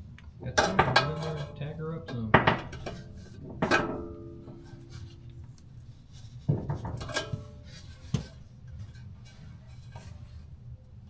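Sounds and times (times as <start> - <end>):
low steady hum: 0.0 - 11.0
metal tools clanking: 0.4 - 5.5, 6.5 - 9.4.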